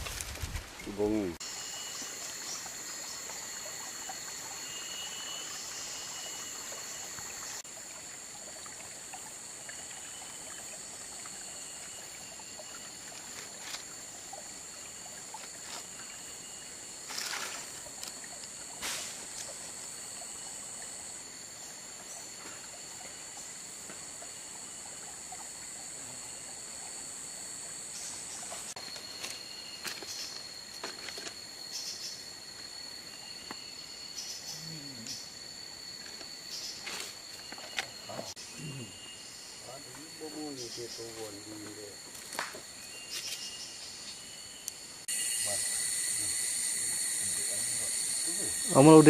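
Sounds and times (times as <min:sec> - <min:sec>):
high-pitched insect chorus: 0:00.0 - 0:49.0
water trickling: 0:00.8 - 0:28.8.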